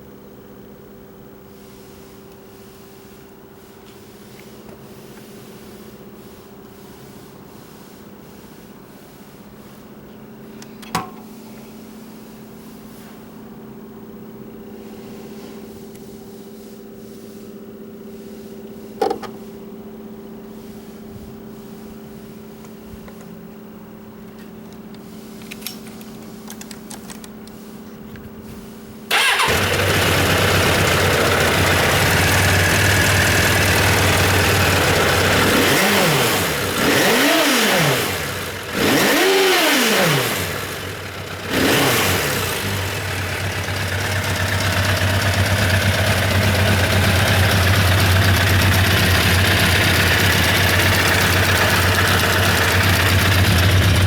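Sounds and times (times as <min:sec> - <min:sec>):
motorcycle engine revving: 0:29.1 - 0:54.0
motorcycle engine starting and idling: 0:29.1 - 0:54.0.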